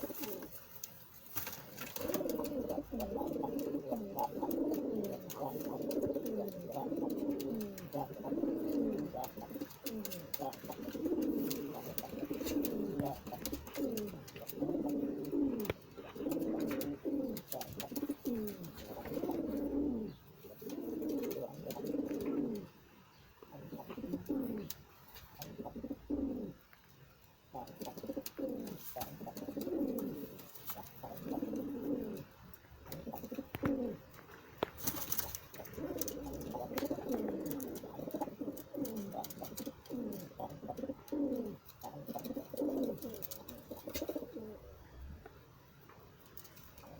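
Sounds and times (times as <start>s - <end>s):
pigeons cooing: 0.0s - 0.6s, 1.4s - 22.8s, 23.4s - 26.7s, 27.5s - 45.2s.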